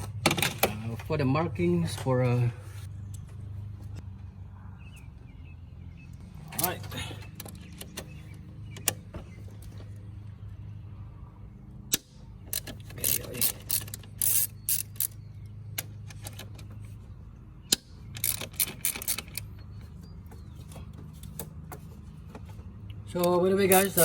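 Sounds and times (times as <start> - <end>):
socket ratchet clicking: 11.9 - 16.6, 17.7 - 19.5, 23.1 - 24.0.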